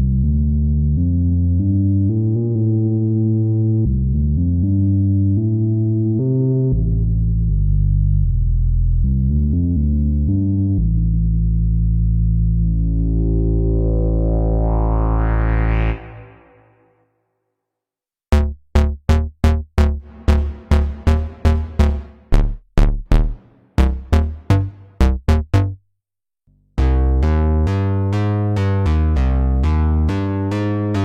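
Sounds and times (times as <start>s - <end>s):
plucky synth bass notes: 0.0s - 16.9s, 18.3s - 25.8s, 26.8s - 31.0s
sequenced synth bass line: 0.0s - 17.0s, 18.3s - 25.8s, 26.8s - 31.0s
synthesizer filter sweep note: 9.6s - 17.0s, 18.3s - 25.8s, 26.8s - 31.0s.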